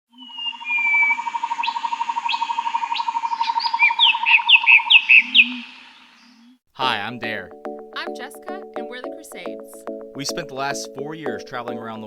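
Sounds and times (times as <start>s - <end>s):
whistled bird notes: 0.1s - 6.6s
birds chirping: 0.1s - 12.0s.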